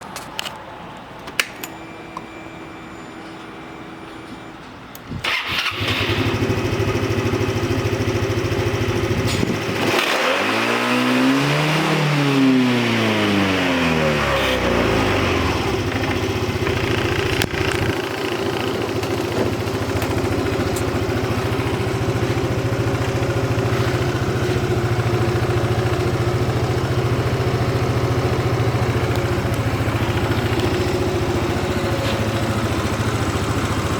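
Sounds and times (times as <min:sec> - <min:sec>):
scooter engine starting and idling: 0:05.1 - 0:33.9
engine revving: 0:08.2 - 0:19.2.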